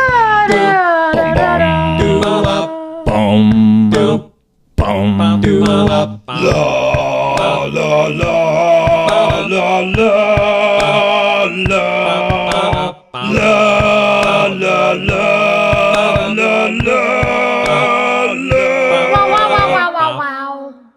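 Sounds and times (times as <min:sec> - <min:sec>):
person droning chant-like tone: 0:01.2 - 0:02.6, 0:13.3 - 0:20.3.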